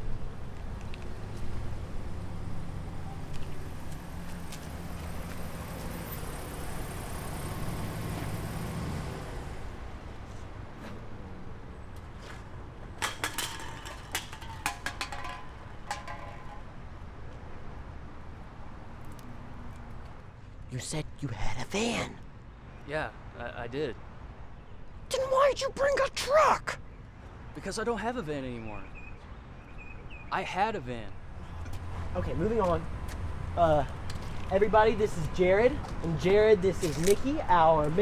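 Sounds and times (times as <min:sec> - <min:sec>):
clicks and knocks: 0:13.0 - 0:16.7.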